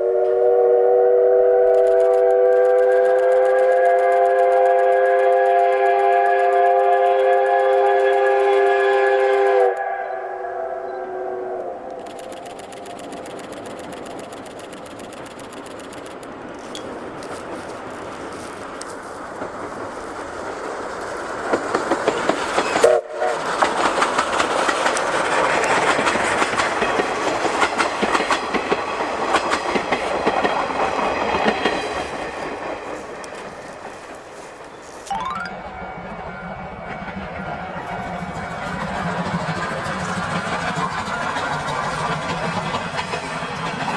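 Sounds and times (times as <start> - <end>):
steam train running past: 0.0 - 35.0, 35.6 - 43.9
wheels clicking over rails: 1.9 - 9.6, 12.0 - 22.8.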